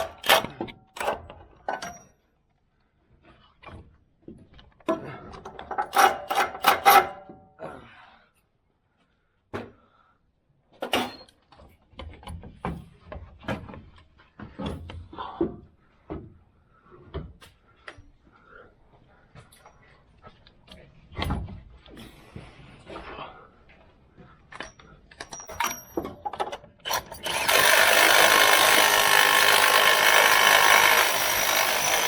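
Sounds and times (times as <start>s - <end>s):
metal tools clanking: 24.5s - 27.7s.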